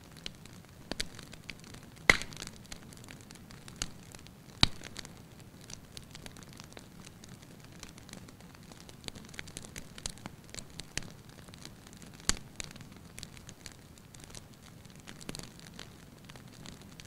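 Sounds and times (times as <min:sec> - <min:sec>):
low rumble of flames: 0:00.0 - 0:17.0
wood fire crackling: 0:00.0 - 0:17.0
sharp pops and snaps: 0:00.2 - 0:05.1, 0:12.2 - 0:13.5.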